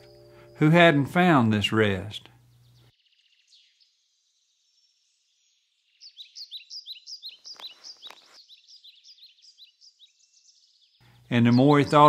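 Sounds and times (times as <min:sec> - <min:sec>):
small birds chirping: 0:02.2 - 0:12.0
rustling with a click: 0:07.4 - 0:08.4.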